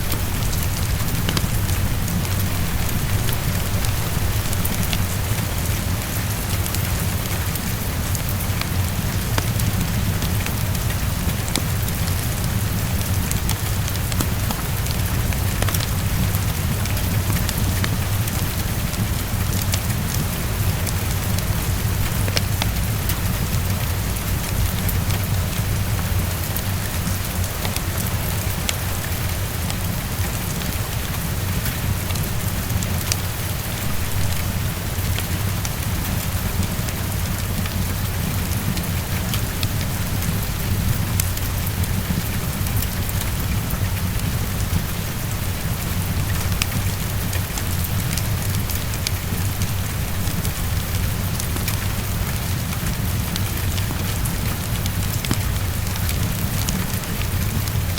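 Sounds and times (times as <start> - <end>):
low rumble: 0.0 - 7.0
heavy rain on window: 0.0 - 57.9.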